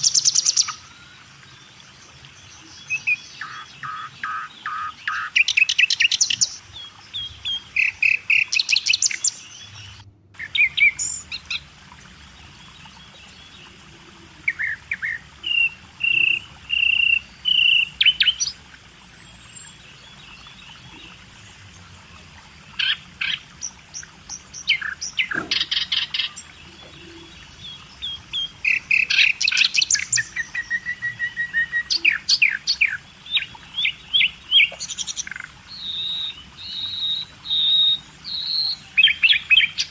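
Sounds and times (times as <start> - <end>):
birds chirping: 0.0 - 39.9
high bird trills: 25.2 - 29.3
whistled bird notes: 25.2 - 32.4.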